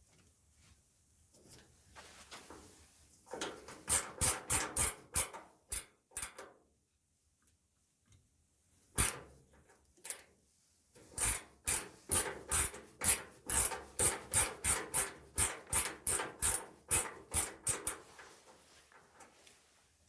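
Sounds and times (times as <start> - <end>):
rubbing or scraping strokes: 1.6 - 3.2, 17.5 - 20.0.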